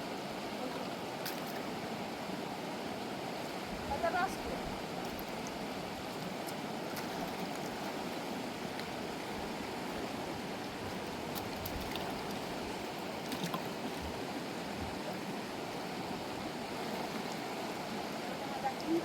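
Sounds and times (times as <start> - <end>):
rushing mountain river: 0.0 - 19.0.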